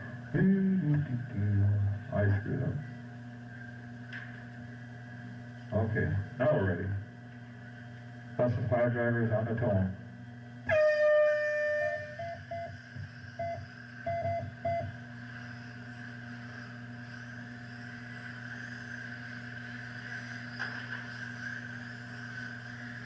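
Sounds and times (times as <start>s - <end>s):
steady hum: 0.0s - 23.0s
short beeps: 10.7s - 12.8s, 13.4s - 14.9s
long electronic start tone: 10.7s - 15.0s.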